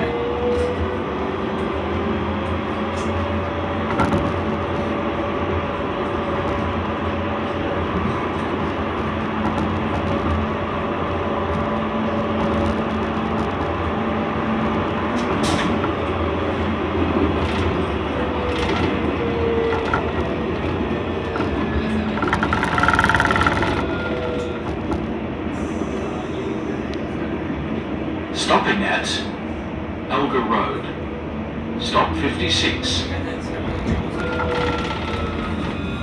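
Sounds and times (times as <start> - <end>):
tram wheels rumbling on rail: 0.0 - 36.0
scattered clicks: 22.1 - 24.5.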